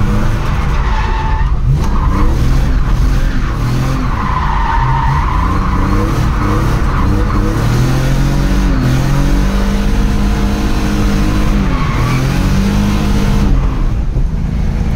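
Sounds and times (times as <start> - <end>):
tyres screeching: 0.0 - 13.2
car engine revving: 0.0 - 14.9.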